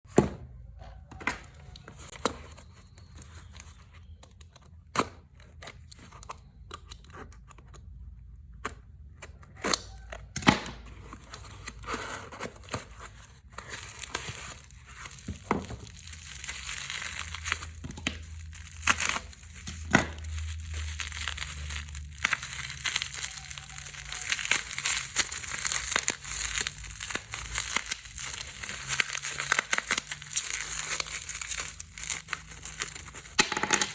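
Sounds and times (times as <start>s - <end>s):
plastic packaging crinkling and tearing: 12.5s - 33.9s.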